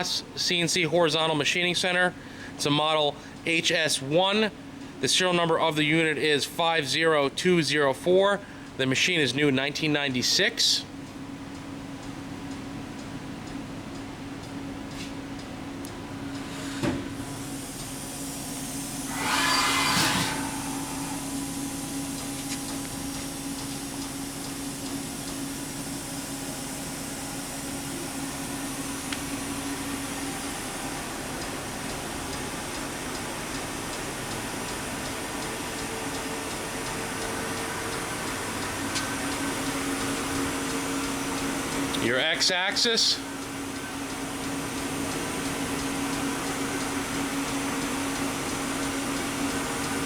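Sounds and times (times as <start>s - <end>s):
machine hum and fan noise: 0.0s - 50.0s
loud hiss of air: 16.5s - 23.8s.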